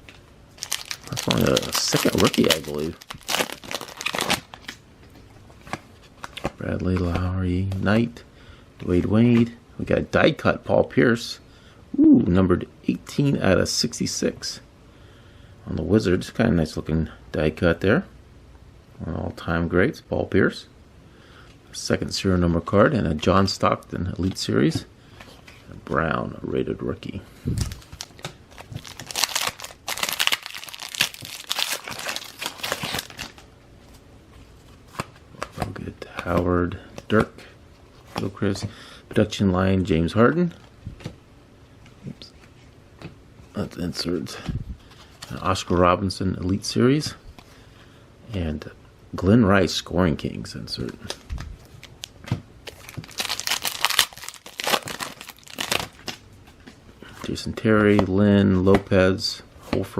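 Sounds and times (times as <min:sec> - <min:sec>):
wrapper tearing and crinkling: 0:00.6 - 0:04.8, 0:27.6 - 0:33.4, 0:51.1 - 0:56.2.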